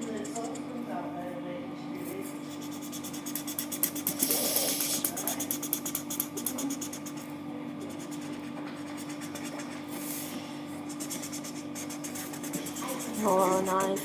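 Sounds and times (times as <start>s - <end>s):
steady low hum: 0.0s - 14.0s
drawing tool scratching on paper: 2.5s - 10.2s, 10.9s - 14.0s.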